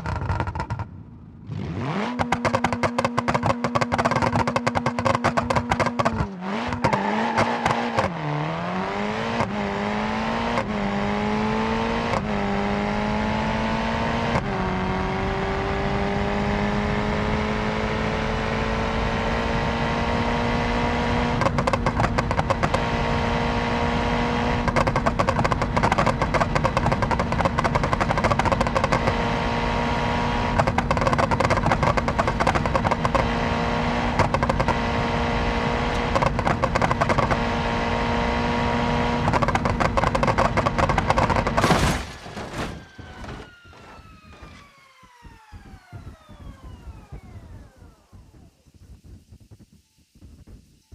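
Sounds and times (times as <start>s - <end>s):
rally car engine at high revs: 0.0s - 44.6s
sharp exhaust pops: 2.1s - 7.0s, 21.4s - 22.8s, 24.6s - 29.2s, 30.5s - 33.2s, 34.2s - 34.8s, 35.9s - 37.4s, 39.2s - 44.6s.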